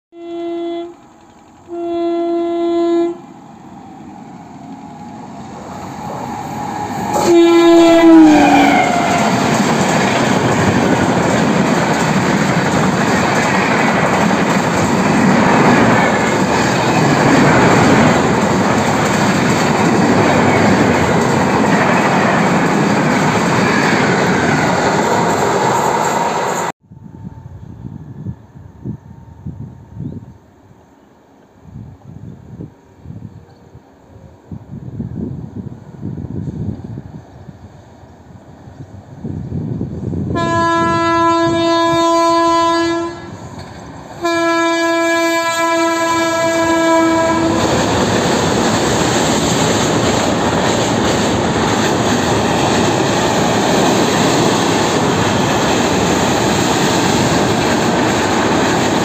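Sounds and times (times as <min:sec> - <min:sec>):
train horn blasts: 0:00.1 - 0:01.0, 0:01.6 - 0:03.4, 0:06.8 - 0:09.5, 0:40.3 - 0:43.4, 0:44.2 - 0:47.8
train coaches rushing past: 0:03.1 - 0:26.7, 0:36.4 - 0:59.0.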